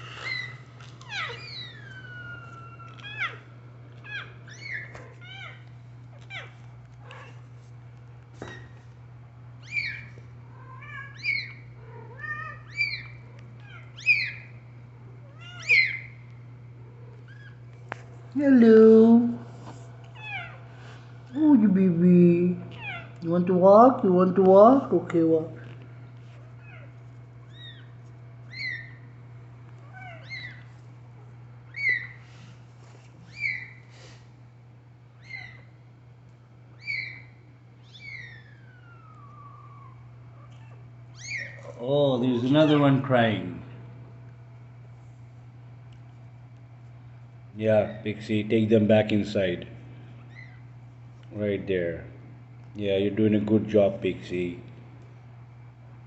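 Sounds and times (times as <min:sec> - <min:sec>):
kittens mewing: 0:00.0 - 0:07.6, 0:09.5 - 0:17.7, 0:20.1 - 0:21.7, 0:22.5 - 0:23.2, 0:25.8 - 0:32.6, 0:33.2 - 0:34.2, 0:35.0 - 0:35.9, 0:36.6 - 0:43.3, 0:49.9 - 0:50.8.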